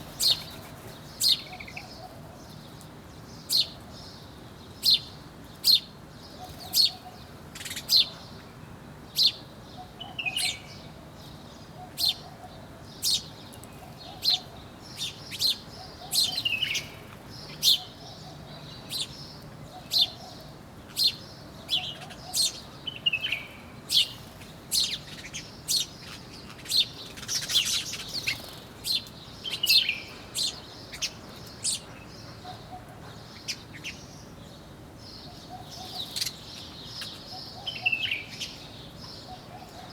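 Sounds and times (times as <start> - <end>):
birds chirping: 0.0 - 2.8, 13.0 - 39.9.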